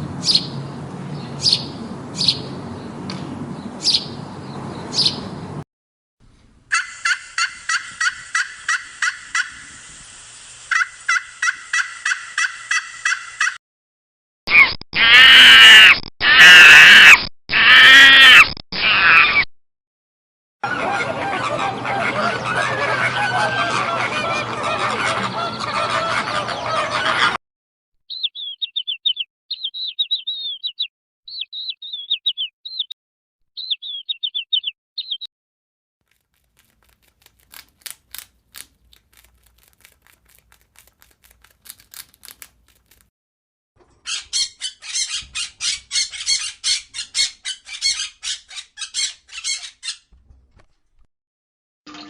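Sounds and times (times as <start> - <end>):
high chirping: 1.4 - 2.5, 28.1 - 33.0, 33.6 - 35.3.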